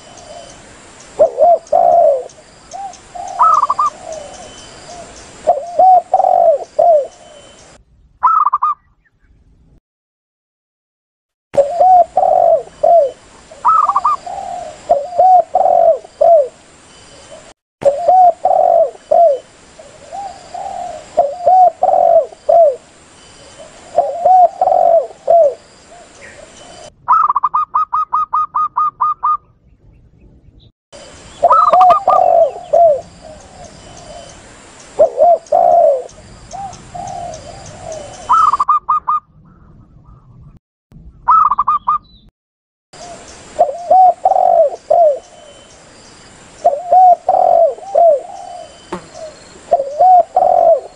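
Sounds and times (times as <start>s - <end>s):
doves cooing: 1.2s - 7.6s, 11.6s - 16.6s, 17.3s - 22.8s, 23.5s - 29.5s, 31.4s - 40.3s, 43.0s - 45.6s, 46.6s - 50.9s.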